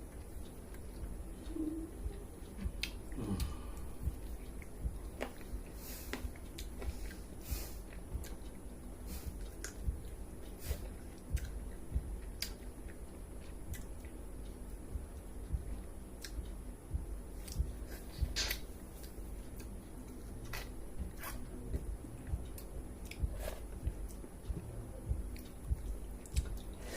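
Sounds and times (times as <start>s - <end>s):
person chewing with wet mouth clicks: 2.5s - 5.5s, 6.1s - 7.2s, 9.4s - 14.2s, 15.2s - 16.6s, 17.4s - 21.4s, 22.2s - 24.2s, 25.3s - 26.8s.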